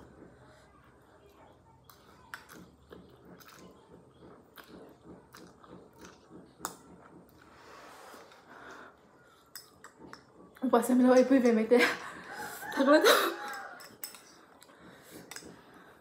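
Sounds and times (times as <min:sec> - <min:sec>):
person chewing: 0:01.8 - 0:10.3.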